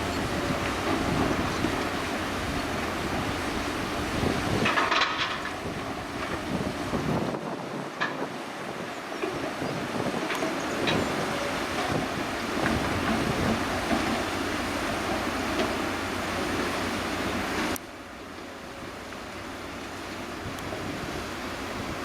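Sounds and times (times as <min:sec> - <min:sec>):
wind buffeting microphone: 0:00.0 - 0:13.9.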